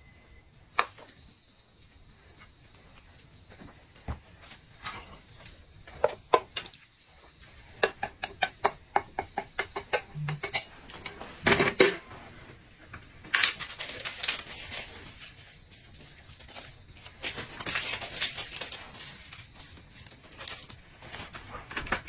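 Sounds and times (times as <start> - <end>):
eating and food handling crackles: 0.0 - 8.8, 9.4 - 22.0.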